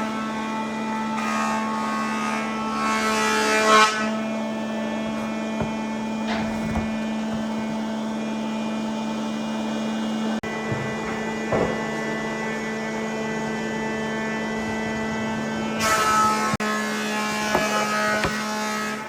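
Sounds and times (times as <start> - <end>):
grinding noise: 2.8 - 9.1.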